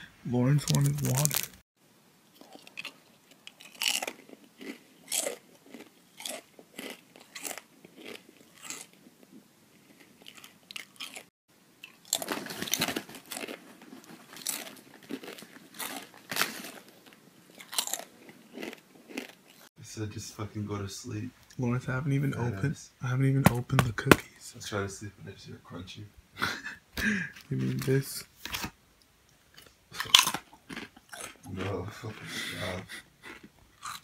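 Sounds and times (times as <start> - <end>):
person crunching chips: 0.6 - 1.6, 2.4 - 9.0, 9.8 - 19.7, 29.6 - 34.0.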